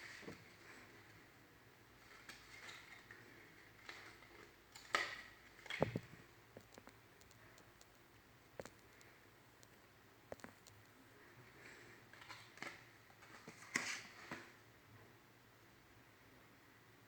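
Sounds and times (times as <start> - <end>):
small objects clicking and tapping: 3.8 - 11.0.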